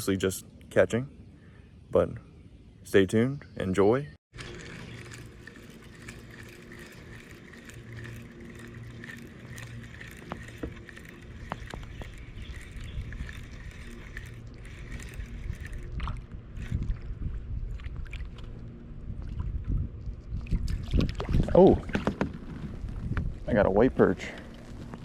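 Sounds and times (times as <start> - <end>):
steady low hum: 0.0 - 22.0
water lapping around hull: 4.4 - 23.1.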